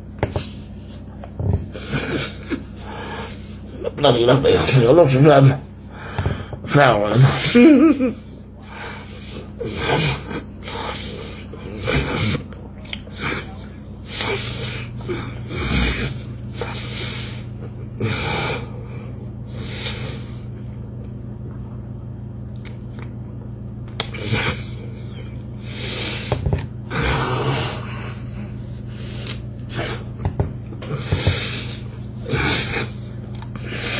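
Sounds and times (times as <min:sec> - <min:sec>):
steady low hum: 0:00.0 - 0:33.9
person chewing bread: 0:08.7 - 0:33.9
nasal breathing sniffs and snorts: 0:30.9 - 0:33.9.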